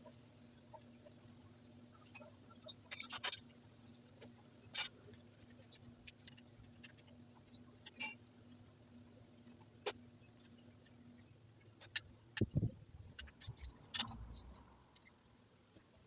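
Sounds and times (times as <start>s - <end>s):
faint steady hum: 0.0s - 16.0s
metallic tool clinks: 2.9s - 3.5s.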